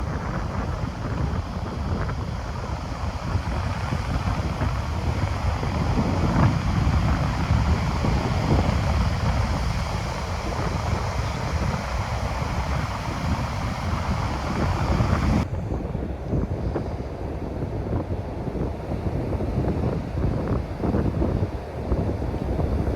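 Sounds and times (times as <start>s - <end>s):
surf breaking on beach: 0.0s - 15.4s
wind buffeting microphone: 0.0s - 22.9s.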